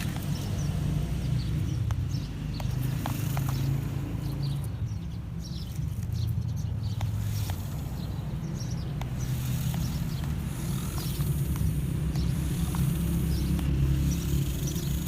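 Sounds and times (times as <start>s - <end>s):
faint birds chirping: 0.0s - 15.0s
small motor humming: 6.9s - 15.0s.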